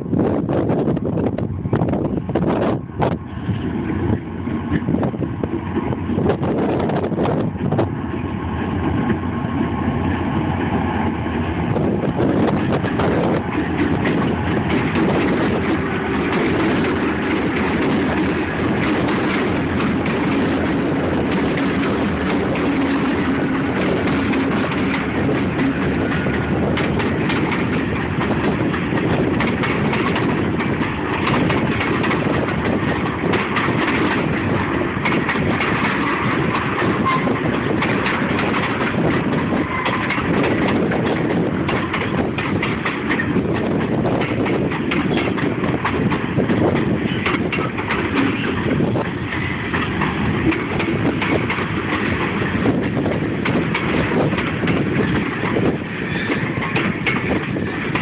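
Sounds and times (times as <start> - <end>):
train wheels rumbling on rail: 0.0 - 58.0
wheels and couplings clattering: 11.8 - 58.0.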